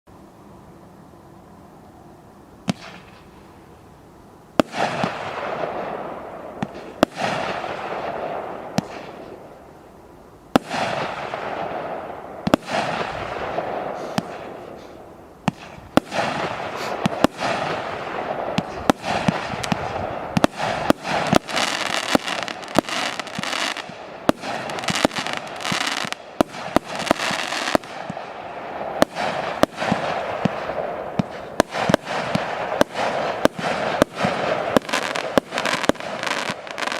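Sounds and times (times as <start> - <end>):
firework launch bangs: 4.6 - 5.7, 10.6 - 28.2, 28.9 - 36.9
firework bursts crackling: 4.6 - 9.6, 10.5 - 36.9.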